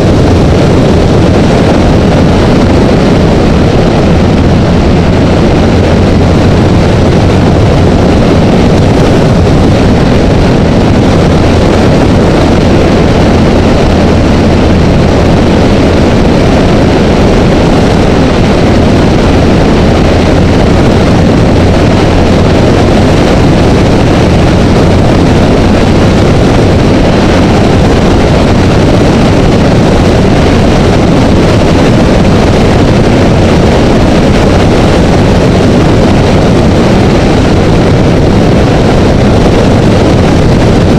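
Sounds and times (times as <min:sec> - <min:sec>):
motorcycle engine drone: 0:00.0 - 0:40.9
wind rushing over camera: 0:00.0 - 0:40.9.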